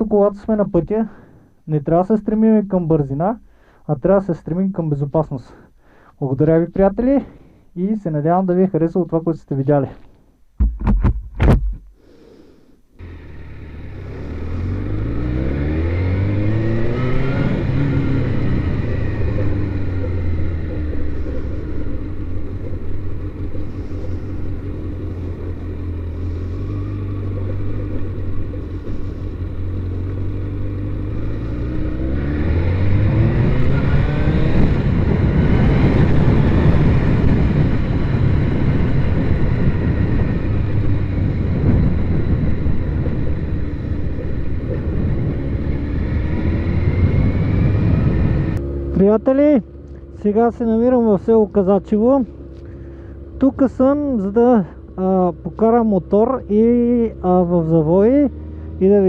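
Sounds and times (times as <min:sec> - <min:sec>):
motorcycle engine accelerating: 0:13.0 - 0:59.0
rushing wind noise: 0:14.0 - 0:48.6.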